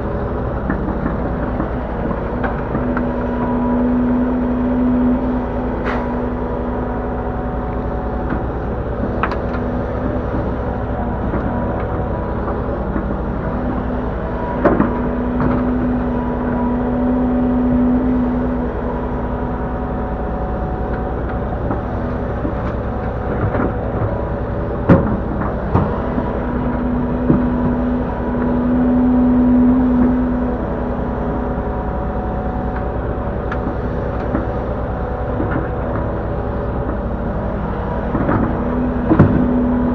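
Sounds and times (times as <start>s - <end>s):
droning tone: 0.0s - 39.9s
excavator engine running: 0.0s - 39.9s.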